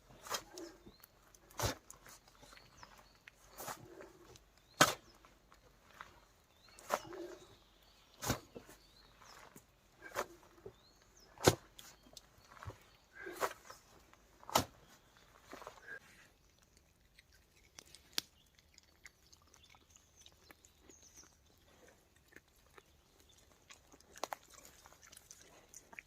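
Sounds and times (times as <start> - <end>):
boar chewing and rooting: 0.0 - 26.0
twig snapping: 17.8 - 18.4.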